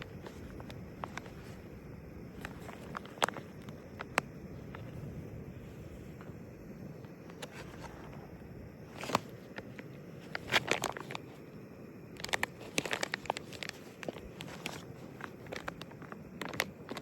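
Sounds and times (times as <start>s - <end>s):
foil pouch crinkling: 0.0s - 4.9s, 8.9s - 11.4s, 12.1s - 17.0s.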